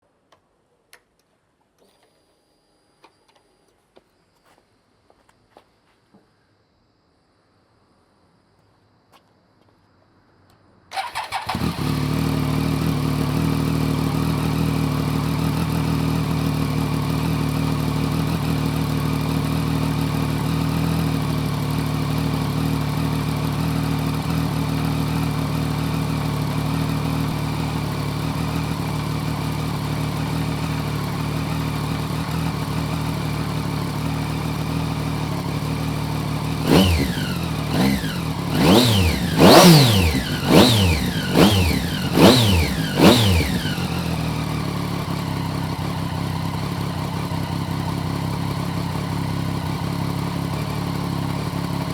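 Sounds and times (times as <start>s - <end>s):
engine throttle blips: 10.9s - 51.9s
motorcycle engine idling: 10.9s - 51.9s.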